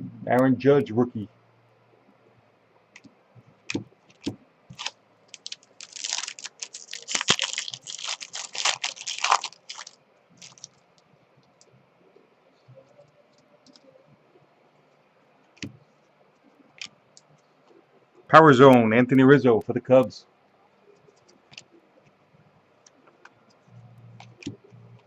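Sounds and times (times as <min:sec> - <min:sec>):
cards being handled: 0:04.1 - 0:10.8
wrapper crinkling as torn open: 0:04.7 - 0:10.8.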